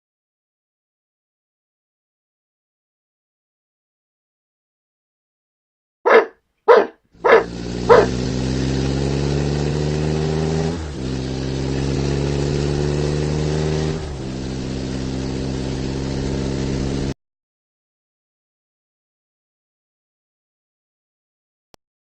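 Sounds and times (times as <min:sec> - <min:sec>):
dog barks: 0:06.1 - 0:08.3
engine drone: 0:07.2 - 0:17.2.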